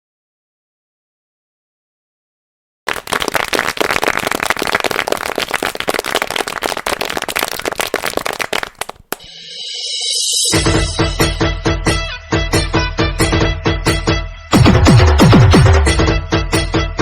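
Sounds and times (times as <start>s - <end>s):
rapid sharp cracks and pops: 3.0s - 9.2s.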